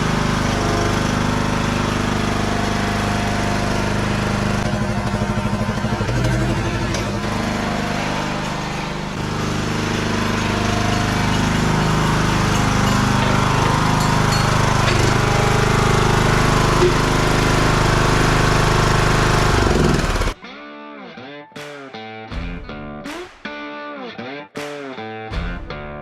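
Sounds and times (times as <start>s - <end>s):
lawn tractor engine running: 0.0s - 20.4s.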